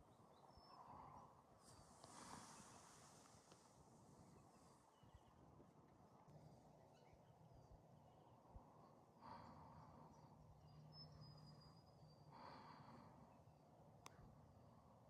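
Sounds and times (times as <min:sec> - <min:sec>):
faint rushes of noise: 0:01.6 - 0:07.2
faint click: 0:03.2 - 0:03.7, 0:14.0 - 0:14.2.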